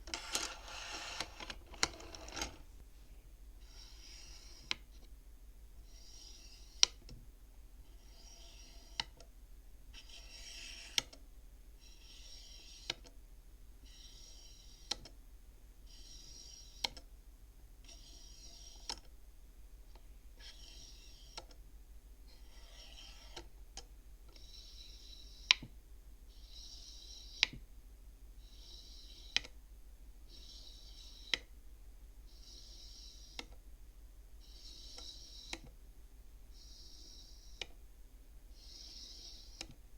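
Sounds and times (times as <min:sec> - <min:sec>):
wooden bead sliding: 0:00.0 - 0:02.8, 0:22.3 - 0:23.6, 0:24.3 - 0:25.7, 0:26.3 - 0:27.6, 0:28.4 - 0:29.6, 0:30.3 - 0:31.5, 0:32.3 - 0:33.6, 0:34.4 - 0:35.8, 0:36.5 - 0:37.8, 0:38.5 - 0:39.8.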